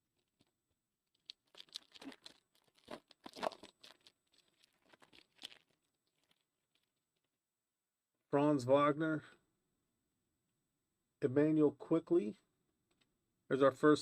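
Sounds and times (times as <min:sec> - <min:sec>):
foil wrapper tearing and crinkling: 0:01.2 - 0:06.9.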